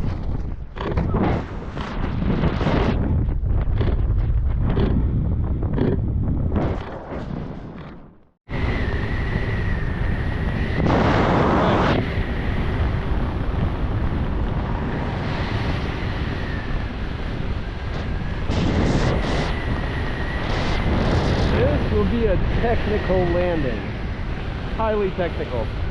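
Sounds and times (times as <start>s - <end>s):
wind buffeting microphone: 0.0s - 25.9s
thin wind whistle: 8.5s - 12.9s, 15.2s - 22.1s.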